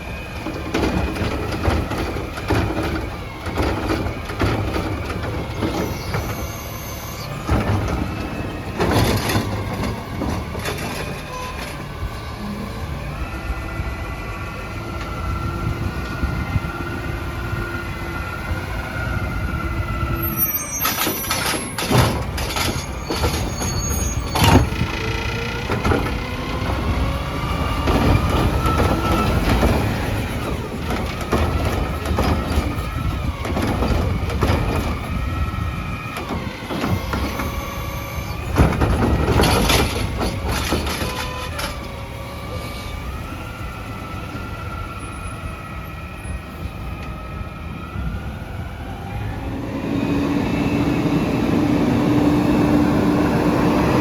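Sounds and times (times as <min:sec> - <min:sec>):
truck engine whine: 0:00.0 - 0:54.0
metal clanks and bangs: 0:07.4 - 0:12.0, 0:20.8 - 0:42.5.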